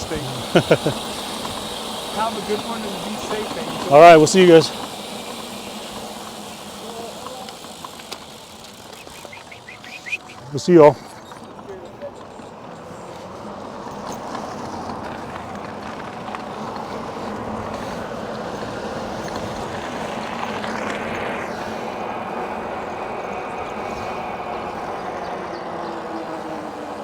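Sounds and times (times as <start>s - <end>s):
faint steady tones: 0.0s - 13.3s
road and wind noise: 0.0s - 27.0s.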